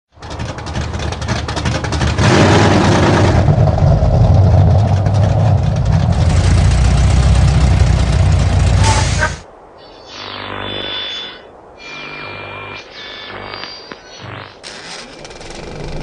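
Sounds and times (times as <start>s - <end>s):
car engine running loudly: 0.3s - 9.4s.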